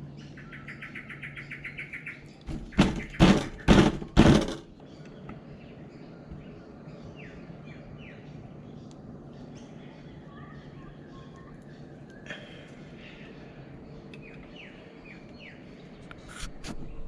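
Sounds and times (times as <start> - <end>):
bird chirping trill: 0.0 - 16.1
loud knocks on wooden boxes: 2.5 - 4.7.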